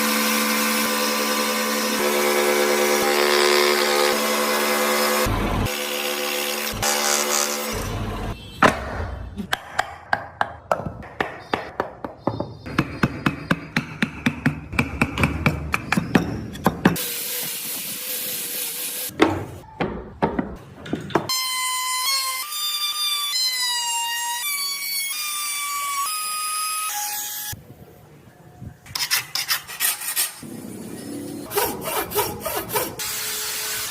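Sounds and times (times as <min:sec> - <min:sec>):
mallet striking chisel: 0:08.6 - 0:17.0.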